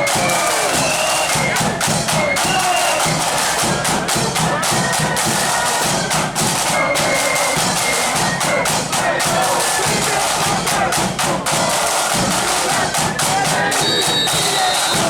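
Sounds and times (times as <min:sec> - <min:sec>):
flutes playing: 0:00.0 - 0:03.8, 0:06.7 - 0:09.5, 0:13.6 - 0:15.0
snare and bass drums: 0:00.0 - 0:15.0.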